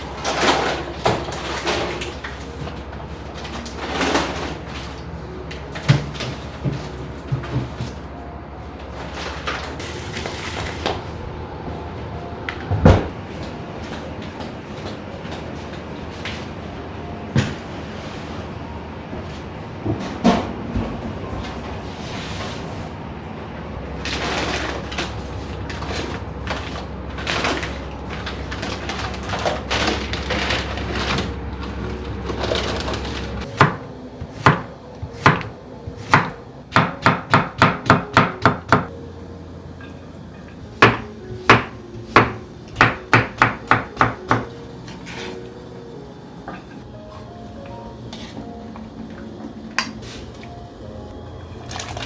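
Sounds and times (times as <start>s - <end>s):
low steady hum: 0.0s - 37.5s, 38.3s - 52.0s
scraping and rustling of food: 24.0s - 33.5s
knife chopping on cutting board: 33.6s - 33.8s.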